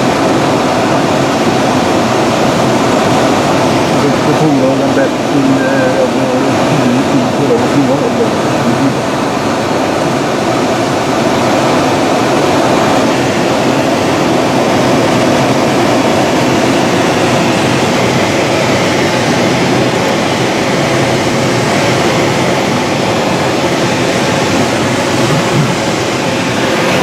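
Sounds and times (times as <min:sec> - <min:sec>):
airflow rushing over glider: 0:00.0 - 0:27.0.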